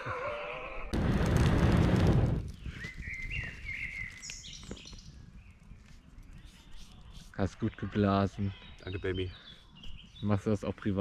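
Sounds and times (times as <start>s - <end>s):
bird chirping: 2.5s - 11.0s.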